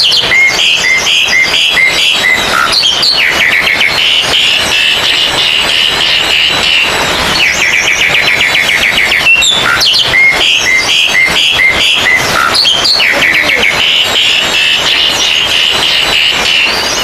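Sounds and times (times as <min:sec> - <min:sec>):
high chatter of birds: 0:00.0 - 0:17.0
magpie-robins singing: 0:00.0 - 0:17.0.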